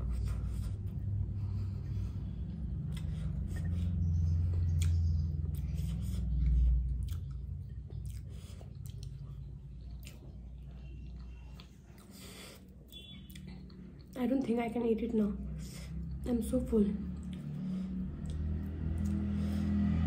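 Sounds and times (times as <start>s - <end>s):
person chewing: 0.0s - 14.2s, 17.2s - 19.6s
wet mouth clicks: 2.8s - 3.7s, 4.7s - 10.4s, 18.2s - 19.3s.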